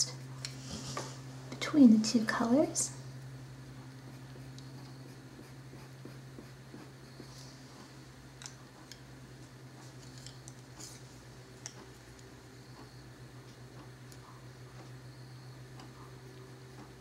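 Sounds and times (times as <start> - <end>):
steady low hum: 0.0 - 17.0
colored pencil scratching paper: 4.1 - 7.3.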